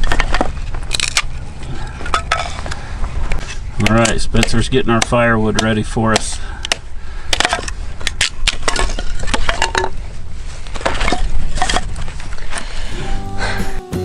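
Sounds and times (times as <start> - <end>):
wood cracking and crunching: 0.0 - 2.9, 3.8 - 12.7
guitar music: 12.9 - 14.0.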